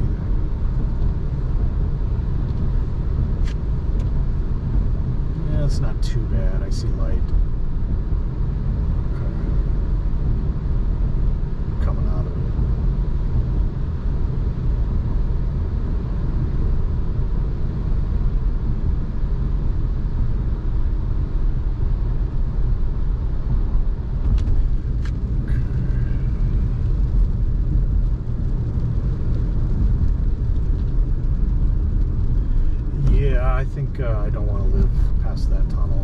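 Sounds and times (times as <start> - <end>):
car driving rumble: 0.0 - 36.0.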